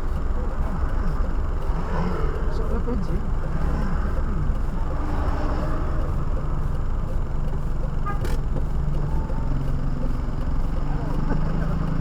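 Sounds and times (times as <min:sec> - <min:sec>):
road noise inside car: 0:00.0 - 0:12.0.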